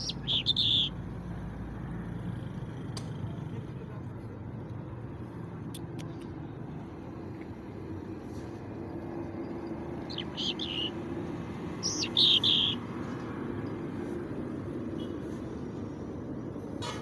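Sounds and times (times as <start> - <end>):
bird chirping: 0.0 - 1.0, 9.4 - 12.9.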